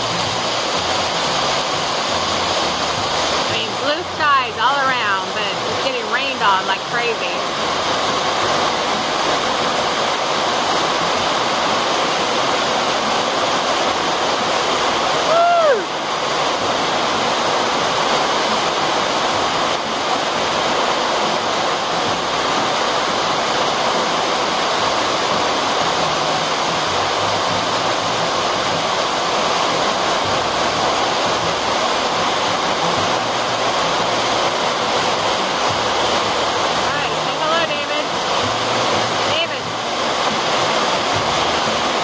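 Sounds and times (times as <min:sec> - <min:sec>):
heavy rain on a tin roof: 0:00.0 - 0:42.0.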